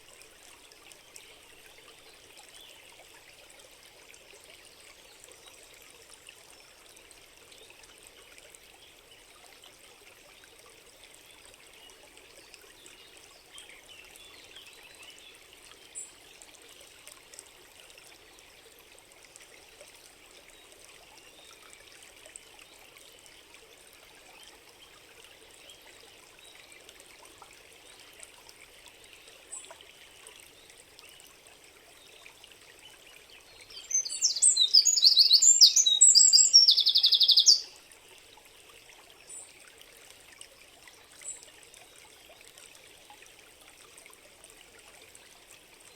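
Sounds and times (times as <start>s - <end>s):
stream trickling: 0.0s - 45.9s
faint high chirps: 33.7s - 37.7s
birds singing loudly: 33.8s - 37.7s.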